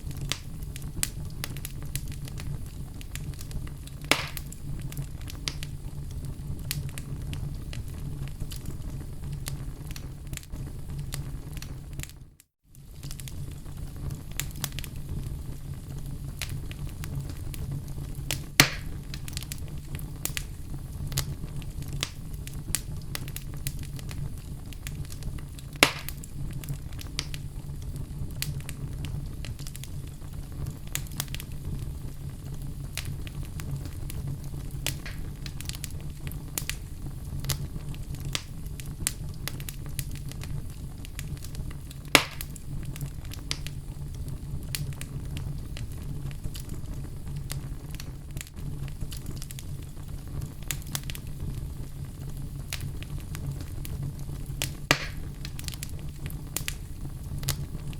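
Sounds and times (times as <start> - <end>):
fire crackling: 0.0 - 57.9
flames rumbling: 0.0 - 57.9
loud sharp pops: 4.0 - 4.6, 18.6 - 19.0, 25.8 - 26.2, 34.9 - 35.4, 42.1 - 42.6, 54.8 - 55.6.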